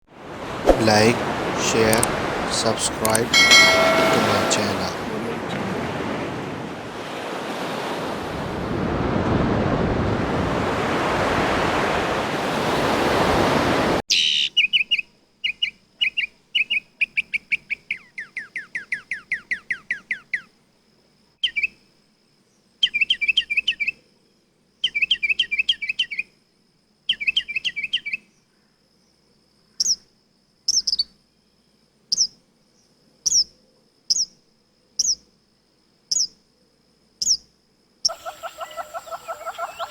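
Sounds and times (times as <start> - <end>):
faint steady high tone: 0.7 - 5.6
songbirds singing: 0.8 - 5.6, 14.1 - 20.6, 21.4 - 21.8, 22.5 - 24.0, 24.8 - 26.3, 27.0 - 29.2, 29.8 - 35.3, 36.1 - 36.4, 37.2 - 39.9.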